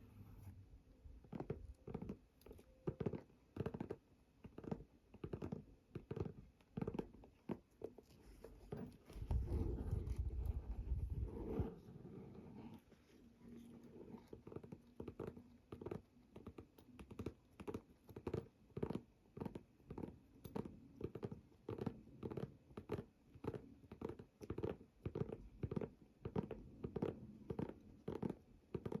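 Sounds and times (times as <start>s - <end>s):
fingernails scratching fabric: 6.2s - 16.0s.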